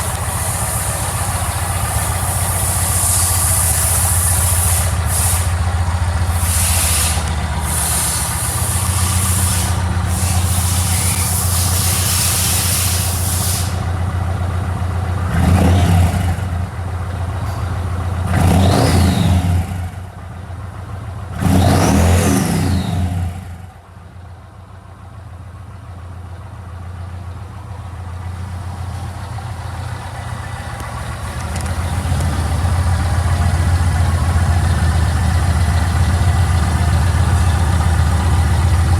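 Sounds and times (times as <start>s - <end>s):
motorcycle engine revving: 0.0s - 20.2s, 21.2s - 23.8s, 29.8s - 38.9s
motorcycle engine idling: 0.0s - 21.5s, 22.5s - 38.9s.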